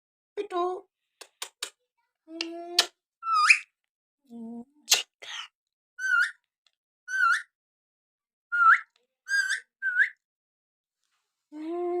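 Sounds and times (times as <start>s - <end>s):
parrot whistling calls: 6.0s - 6.4s, 7.1s - 7.5s, 8.5s - 10.2s.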